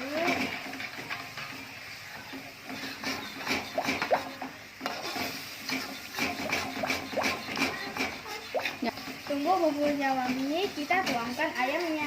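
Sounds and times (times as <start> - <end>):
sauce sizzling: 0.0 - 12.0
utensil scraping sauce in pan: 0.0 - 12.0.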